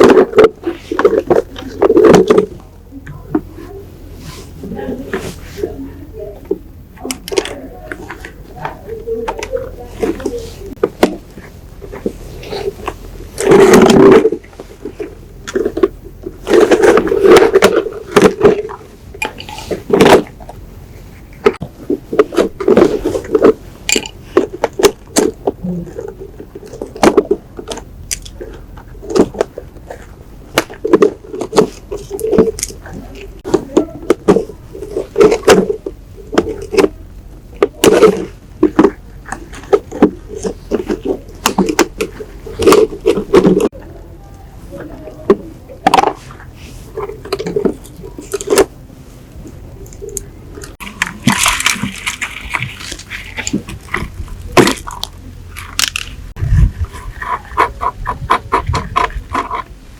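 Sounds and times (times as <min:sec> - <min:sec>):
sharp clicks and knocks: 0:49.4 - 0:59.8.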